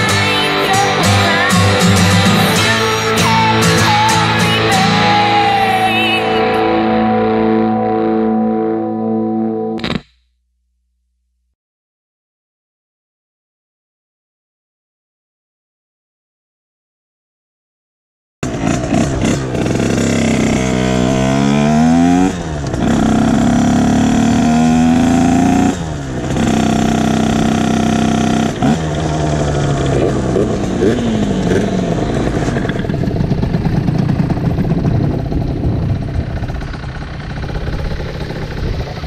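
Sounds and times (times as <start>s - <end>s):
dirt bike engine accelerating: 18.4s - 39.0s.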